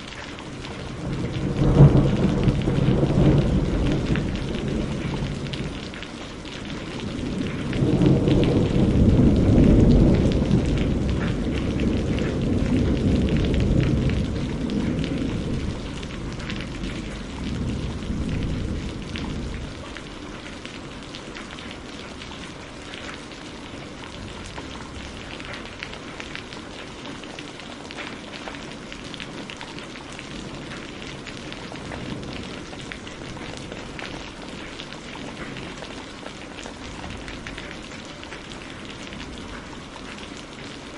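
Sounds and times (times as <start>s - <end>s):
steady rain pattering: 0.0s - 40.9s
rolling thunder: 0.7s - 22.4s, 30.3s - 35.9s.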